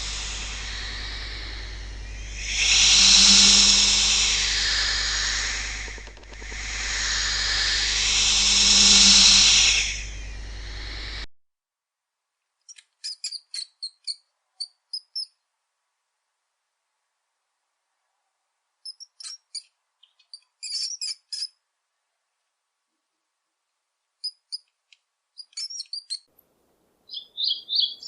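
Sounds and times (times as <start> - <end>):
long hiss: 0.0 - 11.3
small animal high-pitched chirps: 12.7 - 15.4, 18.8 - 21.6, 24.2 - 24.7, 25.4 - 26.3, 27.1 - 28.0.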